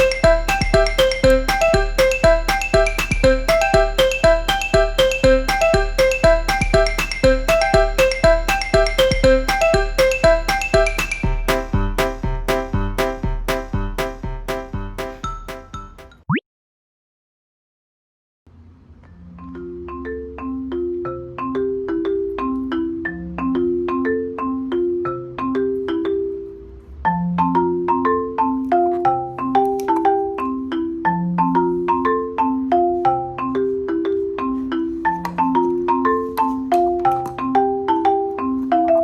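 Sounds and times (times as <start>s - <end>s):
bass line: 0.0s - 16.0s
mallet percussion tune: 0.0s - 16.3s, 19.3s - 39.0s.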